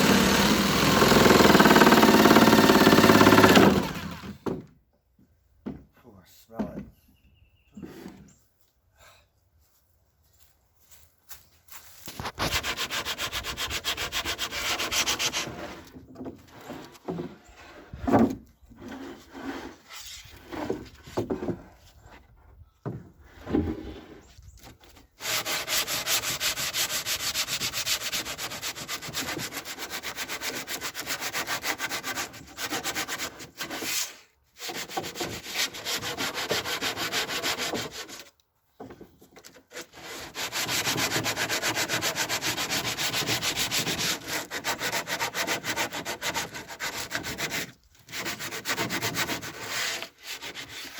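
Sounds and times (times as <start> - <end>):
power sander running: 0.0 - 4.4.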